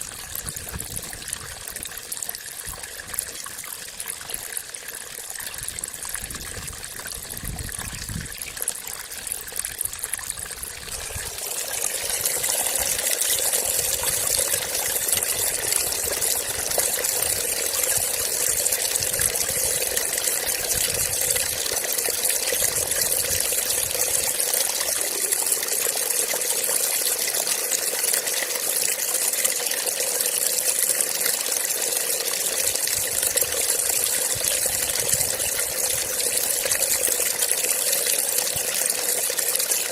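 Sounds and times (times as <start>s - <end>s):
water trickling and flowing: 0.0s - 39.9s.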